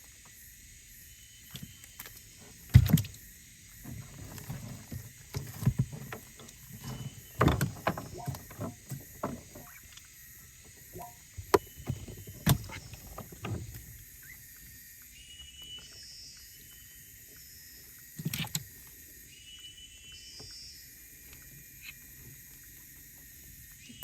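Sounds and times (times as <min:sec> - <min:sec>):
gear knocking in a boat: 0:02.4 - 0:09.9, 0:10.7 - 0:14.1.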